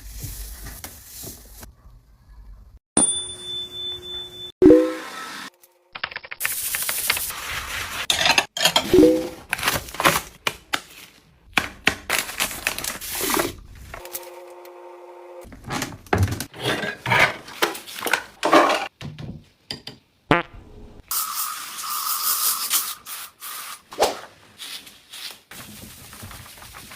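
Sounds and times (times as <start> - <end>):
household items clattering: 8.1 - 10.2, 15.5 - 19.0.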